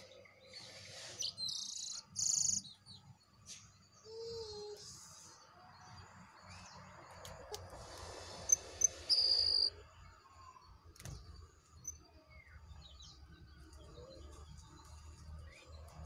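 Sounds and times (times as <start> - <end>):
bird chirping and whistling: 8.8 - 9.7.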